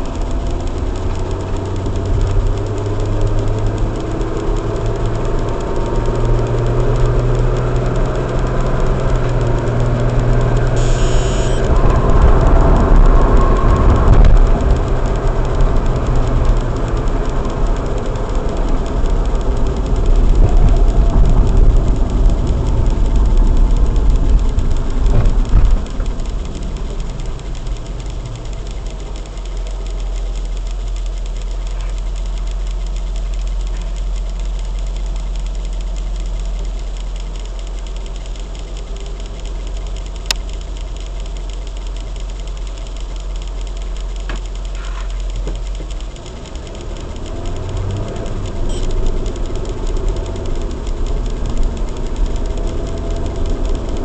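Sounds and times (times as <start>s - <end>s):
car engine and road rumble: 0.0s - 54.0s
sharp click: 0.0s - 54.0s.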